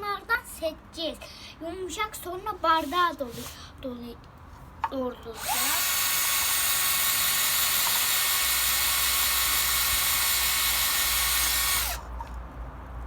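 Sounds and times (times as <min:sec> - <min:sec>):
electric drill boring into coconut: 0:05.4 - 0:12.1.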